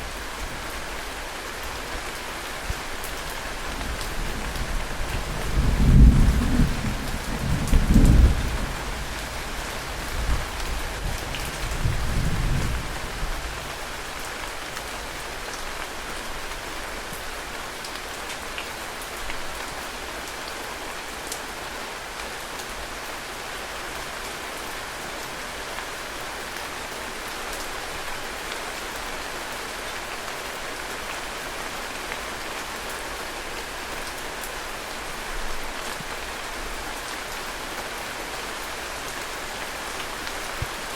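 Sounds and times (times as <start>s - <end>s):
heavy rain falling: 0.0s - 40.9s
low rumbling thunder: 4.0s - 13.4s.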